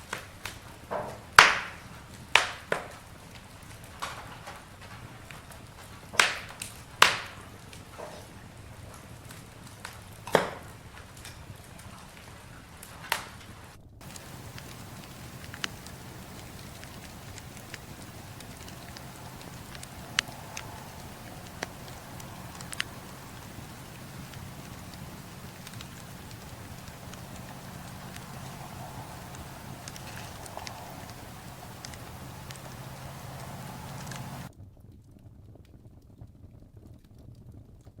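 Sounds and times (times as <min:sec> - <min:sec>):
campfire flames rumbling: 0:00.0 - 0:34.5
fire crackles and pops: 0:00.0 - 0:34.5.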